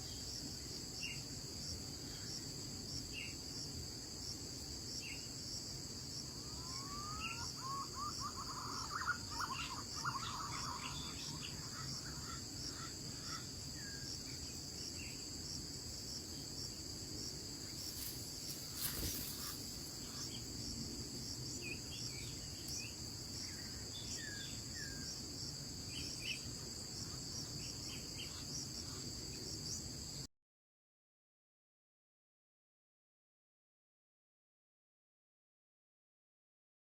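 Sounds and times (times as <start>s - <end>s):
crickets trilling: 0.0s - 30.3s
bird calls: 6.4s - 14.1s, 17.7s - 20.5s.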